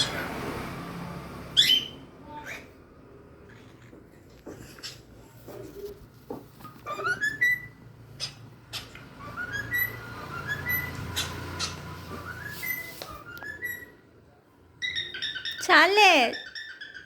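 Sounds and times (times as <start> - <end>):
cockatiel whistling: 6.8 - 14.0.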